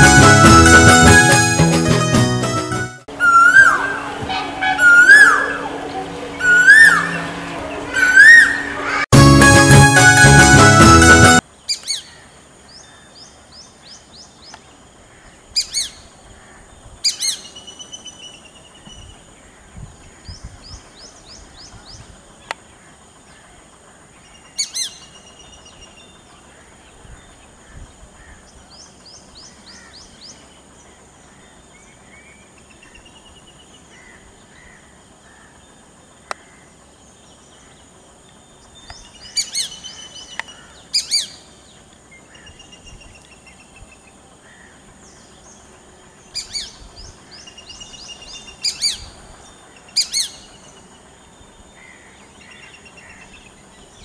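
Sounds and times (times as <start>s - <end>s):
sharp high bird calls: 3.1s - 9.1s.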